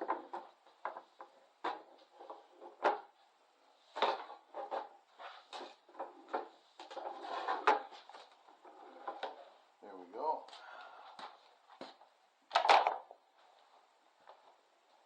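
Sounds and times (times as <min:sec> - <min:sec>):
objects knocking and clunking: 0:00.0 - 0:03.2, 0:03.8 - 0:09.6, 0:11.1 - 0:14.5.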